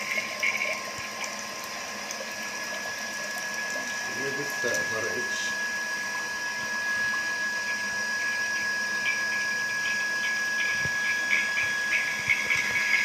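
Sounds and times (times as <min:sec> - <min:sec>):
water spattering and trickling: 0:00.0 - 0:05.6
electric pump motor whining: 0:00.0 - 0:13.0.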